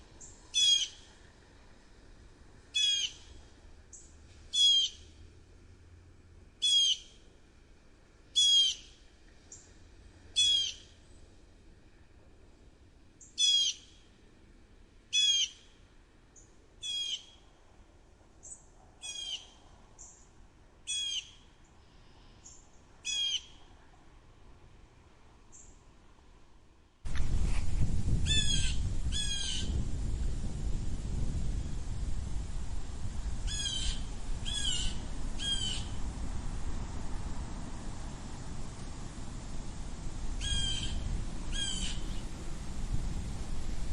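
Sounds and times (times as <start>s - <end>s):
blue jay calling: 0.2s - 1.1s, 2.7s - 5.1s, 6.6s - 7.2s, 8.4s - 9.0s, 10.4s - 10.9s, 13.2s - 14.0s, 15.1s - 15.7s, 16.8s - 17.4s, 18.4s - 19.6s, 20.9s - 21.4s, 23.0s - 23.6s, 28.2s - 29.7s, 33.4s - 36.0s, 40.4s - 42.2s.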